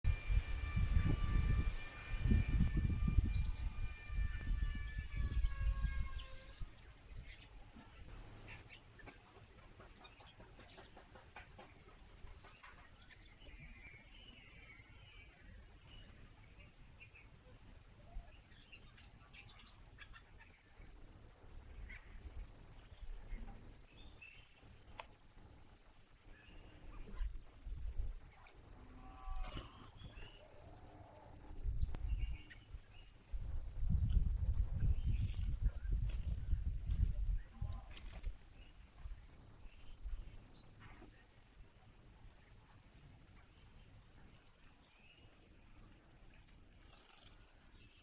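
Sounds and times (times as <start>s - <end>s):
high-pitched insect drone: 0.1s - 7.5s, 21.1s - 42.8s
bird chirps: 0.4s - 24.5s.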